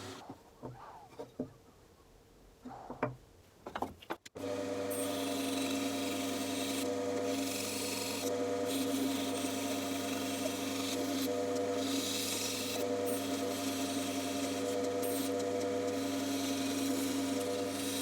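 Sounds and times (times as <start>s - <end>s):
bandsaw cutting wood: 0.0s - 0.2s, 4.4s - 18.0s.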